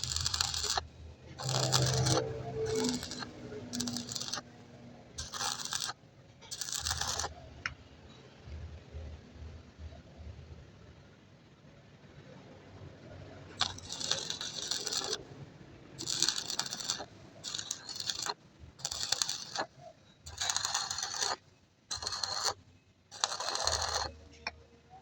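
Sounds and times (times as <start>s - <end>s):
harsh scraping on metal: 0.0s - 7.3s, 13.6s - 15.2s, 16.0s - 24.2s.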